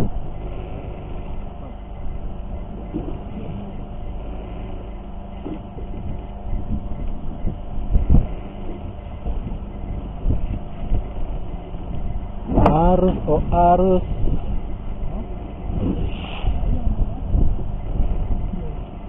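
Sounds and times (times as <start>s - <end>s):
boat engine running: 0.0s - 19.0s
heavy low thump: 11.9s - 13.3s.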